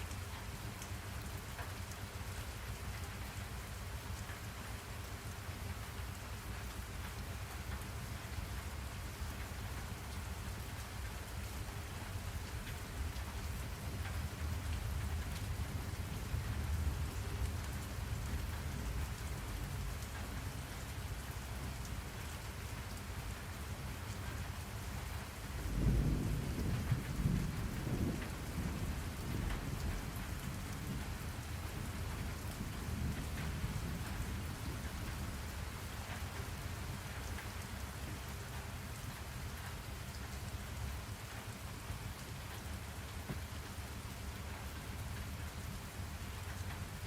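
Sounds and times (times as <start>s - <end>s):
steady rain falling: 0.0s - 47.0s
thunder rumbling: 25.6s - 35.5s.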